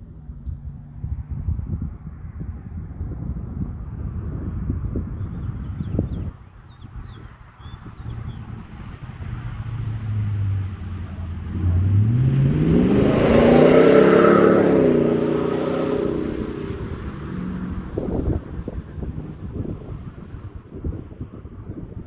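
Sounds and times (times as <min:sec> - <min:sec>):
car accelerating past: 0:07.8 - 0:20.9.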